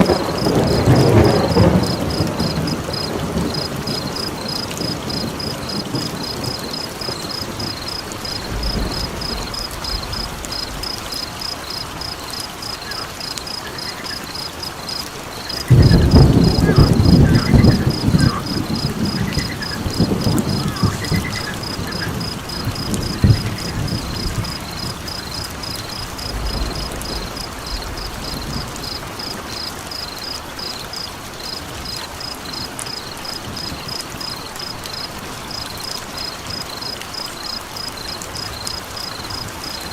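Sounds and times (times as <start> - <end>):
thunder rumble: 0.0 - 30.6
crickets chirping: 0.0 - 39.9
rain hiss: 0.0 - 39.9.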